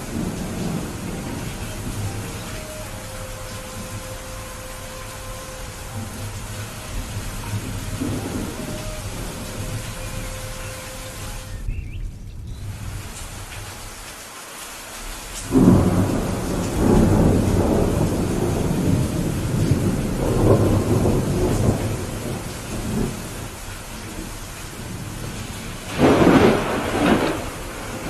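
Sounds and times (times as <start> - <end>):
thunder rumbling: 0.0 - 14.0, 15.0 - 28.0
steady rain: 0.0 - 28.0.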